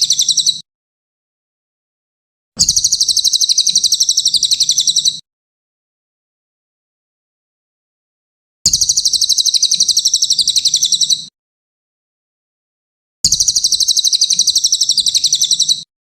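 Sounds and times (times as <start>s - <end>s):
bird high fast trill: 0.0s - 0.6s, 2.6s - 5.2s, 8.7s - 11.3s, 13.3s - 15.9s.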